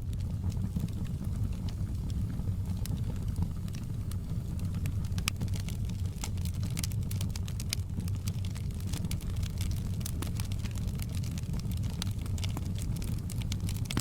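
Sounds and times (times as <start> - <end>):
fire crackles and pops: 0.0 - 14.0
low rumble of fire flames: 0.0 - 14.0.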